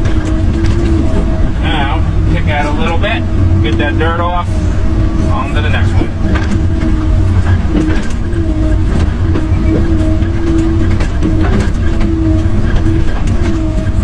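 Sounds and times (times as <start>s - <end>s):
excavator diesel engine under load: 0.0s - 14.0s
hydraulic whine: 0.0s - 14.0s
clunks and knocks: 5.2s - 14.0s.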